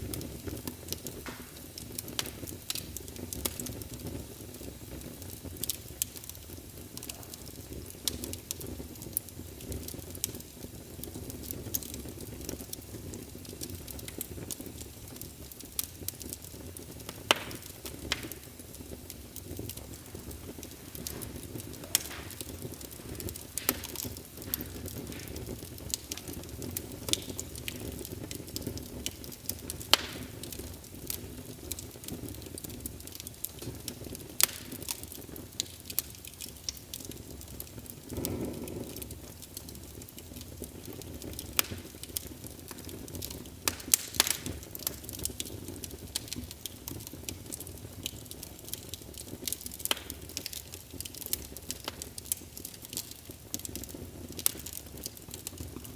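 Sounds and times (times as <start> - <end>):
fire crackling and popping: 0.0 - 55.9
low rumble of flames: 0.0 - 55.9
fire whoosh: 17.6 - 28.6.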